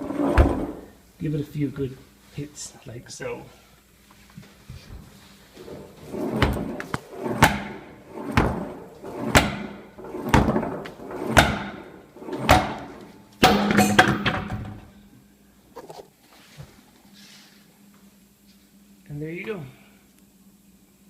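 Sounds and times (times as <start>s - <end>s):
sledgehammer scraping concrete: 6.0s - 13.6s
sledgehammer hitting tire: 11.4s - 11.9s, 12.5s - 14.7s.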